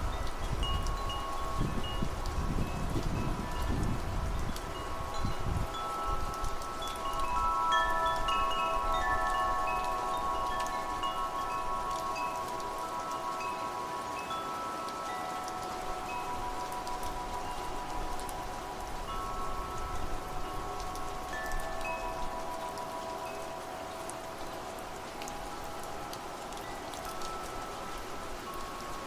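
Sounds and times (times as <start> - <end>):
low wind rumble: 0.0 - 14.4
wind and rain hiss: 0.0 - 29.0
wind chimes ringing: 0.0 - 29.0.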